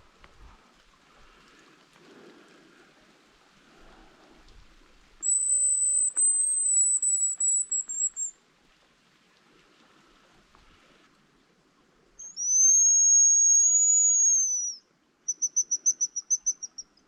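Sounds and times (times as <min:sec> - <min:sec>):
high thin decoy whistle: 0:05.2 - 0:08.3, 0:12.2 - 0:17.0.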